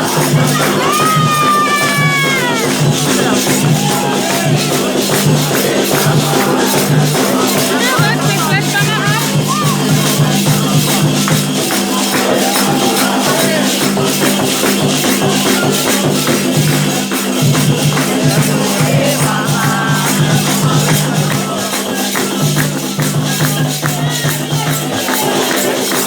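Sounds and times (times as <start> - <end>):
hand drums playing: 0.0 - 26.0
rattling percussion: 0.0 - 26.0.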